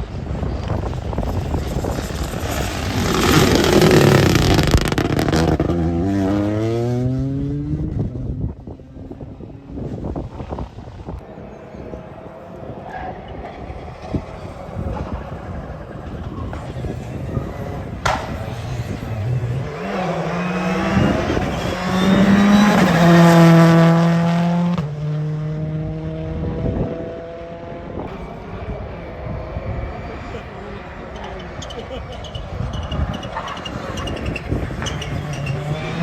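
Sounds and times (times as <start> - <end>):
rally car engine revving: 0.0 - 11.2, 12.8 - 36.0.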